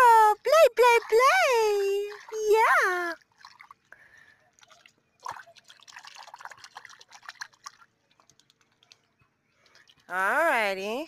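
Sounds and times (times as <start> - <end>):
puddle water splashing and dripping: 0.5 - 10.7.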